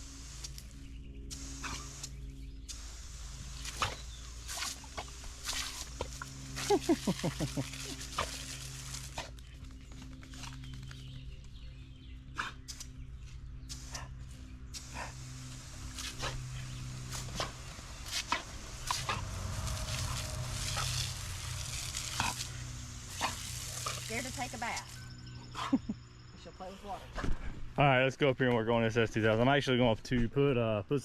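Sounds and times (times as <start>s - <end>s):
low hum: 0.0s - 28.2s
dog splashing in water: 17.1s - 24.4s.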